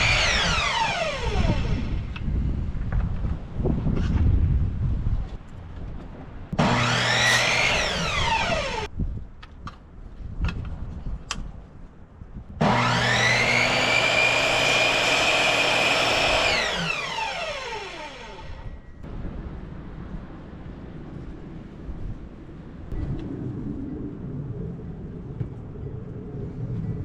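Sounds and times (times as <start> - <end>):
power tool motor running: 0.0 - 2.2, 6.6 - 8.9, 12.6 - 18.8.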